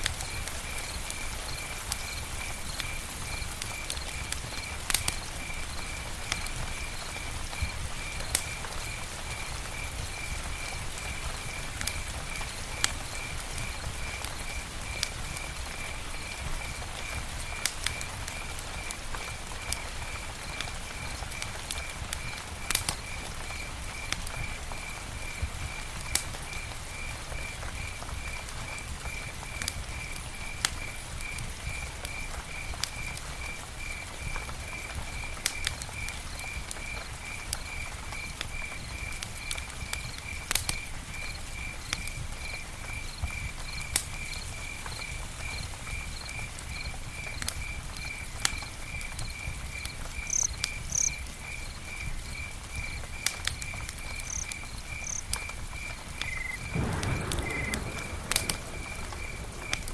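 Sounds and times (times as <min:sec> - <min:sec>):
campfire crackling: 0:00.0 - 0:59.9.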